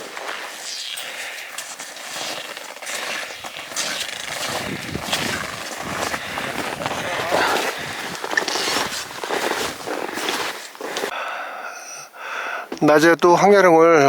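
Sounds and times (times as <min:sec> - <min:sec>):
footsteps on trail: 0:00.0 - 0:11.2
wind buffeting microphone: 0:04.2 - 0:09.9.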